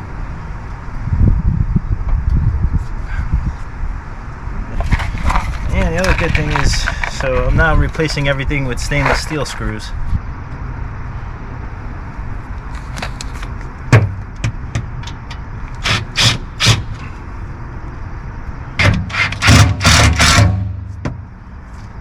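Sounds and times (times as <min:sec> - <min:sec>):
power driver driving screws: 0:15.8 - 0:16.8, 0:18.8 - 0:20.6.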